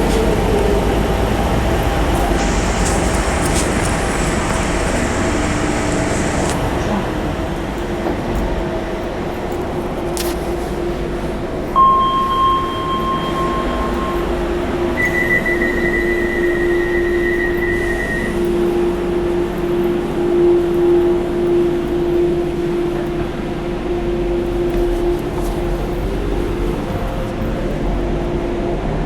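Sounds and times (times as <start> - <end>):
train rumbling: 0.0 - 29.0
higher beep: 11.8 - 18.5
long steady beep: 11.8 - 25.1.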